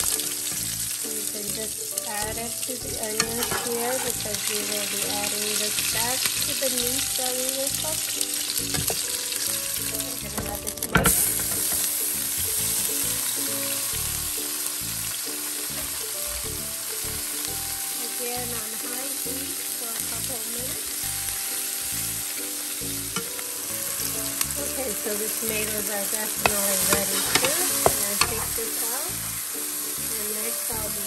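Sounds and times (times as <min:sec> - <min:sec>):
tomatoes sizzling in hot oil: 0:00.0 - 0:31.0
utensil stirring in a pan: 0:02.8 - 0:06.6, 0:21.7 - 0:30.2.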